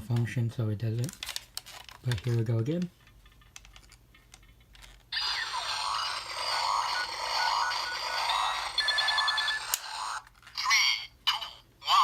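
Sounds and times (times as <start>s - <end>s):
toy rushing sound effect: 5.2s - 10.2s.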